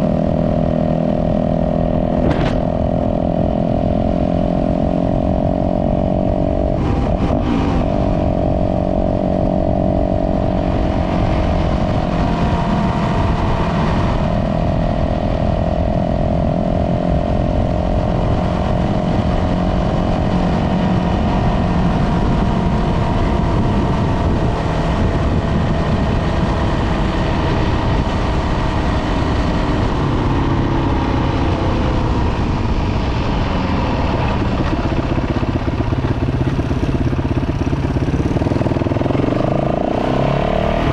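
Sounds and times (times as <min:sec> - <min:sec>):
dirt bike engine running: 0:00.0 - 0:40.9
low wind rumble: 0:00.0 - 0:40.9.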